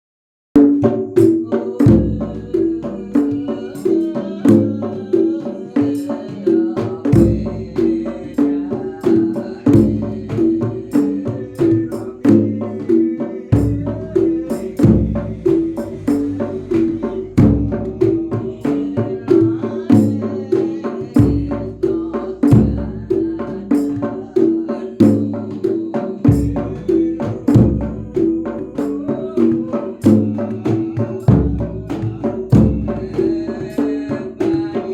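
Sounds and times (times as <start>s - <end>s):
fast sharp percussion: 0.6s - 34.9s
deep bass drum strokes: 1.3s - 5.0s, 7.2s - 24.1s, 25.0s - 34.8s
repeating pitched percussion pattern: 9.6s - 19.0s.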